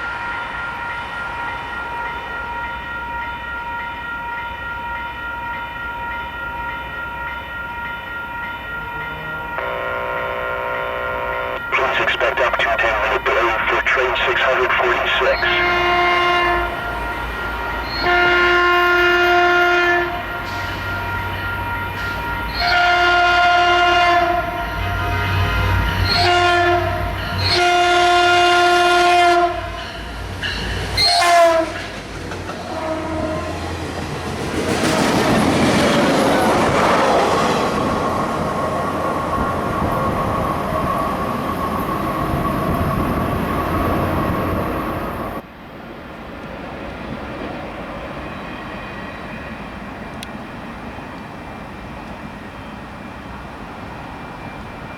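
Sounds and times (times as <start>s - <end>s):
locomotive air horn blasts: 9.5s - 11.7s, 15.4s - 17.3s, 17.9s - 21.9s, 22.5s - 29.8s, 31.0s - 31.8s, 32.7s - 33.6s
train wheels rumbling on rail: 11.6s - 54.9s.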